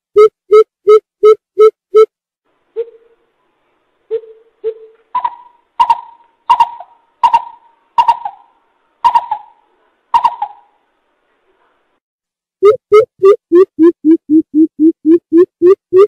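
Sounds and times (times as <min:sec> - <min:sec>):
coucal hooting: 0:04.1 - 0:10.8.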